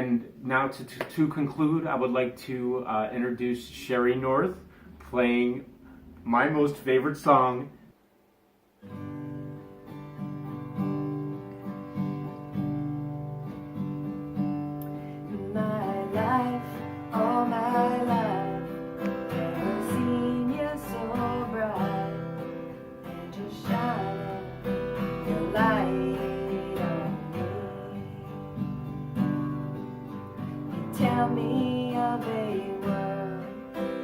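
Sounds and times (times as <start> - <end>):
acoustic guitar strumming: 8.8 - 34.0.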